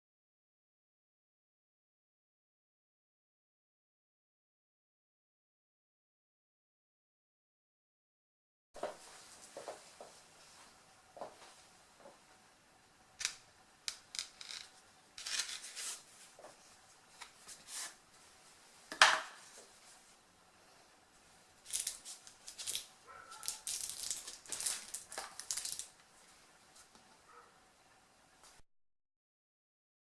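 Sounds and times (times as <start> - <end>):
packaging rustling and scraping: 14.2 - 16.4, 21.7 - 25.9.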